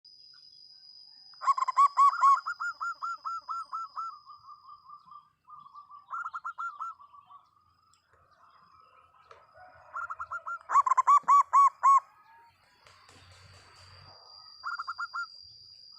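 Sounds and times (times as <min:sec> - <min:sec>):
faint high whine: 0:00.1 - 0:15.9
dove cooing: 0:01.4 - 0:07.4, 0:09.1 - 0:12.5, 0:14.6 - 0:15.3.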